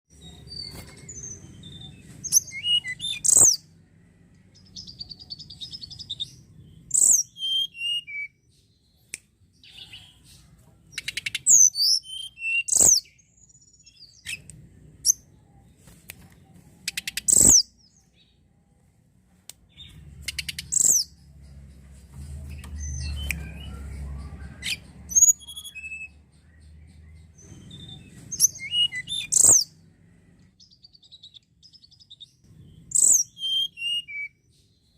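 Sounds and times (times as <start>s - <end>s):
songbird whistling and chattering: 0.1s - 3.6s, 4.6s - 8.4s, 10.9s - 15.3s, 16.8s - 18.1s, 19.8s - 21.2s, 22.5s - 29.8s, 30.6s - 34.5s.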